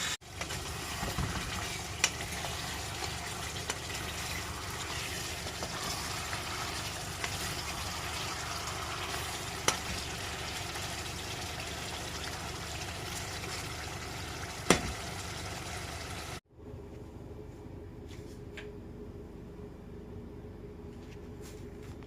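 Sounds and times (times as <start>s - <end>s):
chicken sizzling in a pan: 0.0s - 16.4s.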